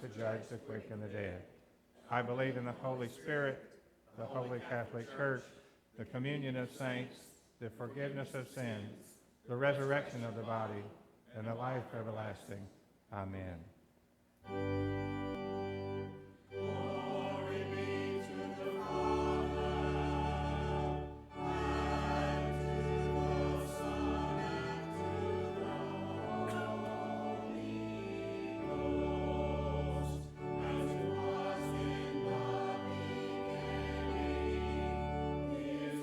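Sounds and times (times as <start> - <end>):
organ chords: 14.4 - 36.0
voices singing together: 16.0 - 36.0.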